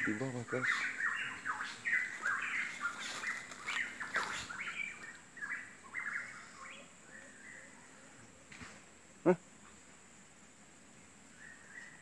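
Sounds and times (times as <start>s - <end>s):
bird chirping: 0.0s - 8.3s, 11.3s - 12.0s.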